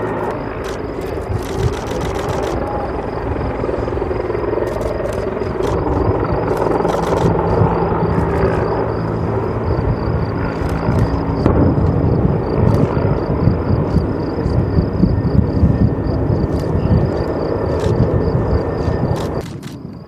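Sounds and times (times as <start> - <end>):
sharp clicks: 0.2 - 2.6, 4.6 - 5.9, 6.5 - 7.4, 18.8 - 20.0.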